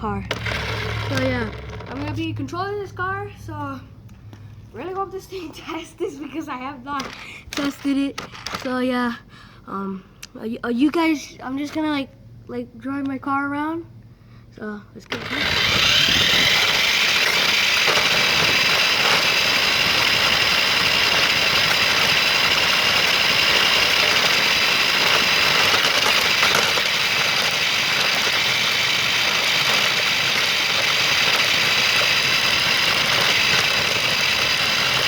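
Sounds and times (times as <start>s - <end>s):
toy car motor whining: 0.3s - 2.3s, 7.0s - 8.7s, 15.1s - 35.0s.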